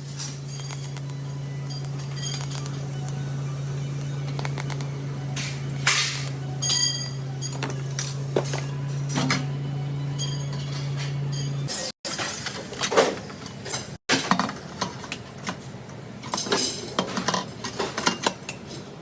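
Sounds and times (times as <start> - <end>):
steel pieces clinking: 0.0 - 2.8
low electrical hum: 0.0 - 12.6.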